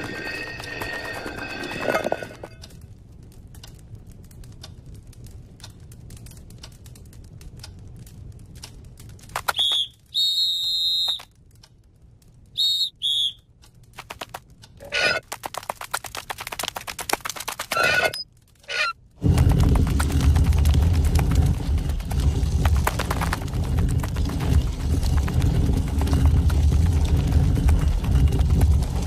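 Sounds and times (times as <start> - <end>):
faint ticks: 2.6 - 9.3
high whistled tones: 9.5 - 11.3, 12.6 - 13.4.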